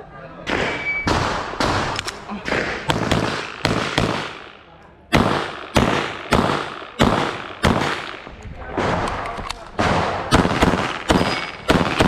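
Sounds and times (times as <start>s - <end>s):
pistol shots echoing: 0.4s - 12.0s.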